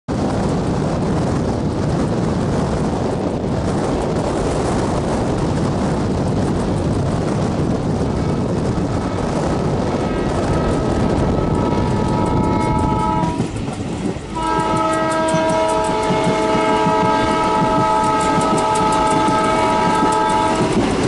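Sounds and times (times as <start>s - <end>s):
train rumbling at speed: 0.1s - 21.0s
wind noise: 0.1s - 21.0s
faint locomotive horn: 10.1s - 13.6s, 14.3s - 21.0s.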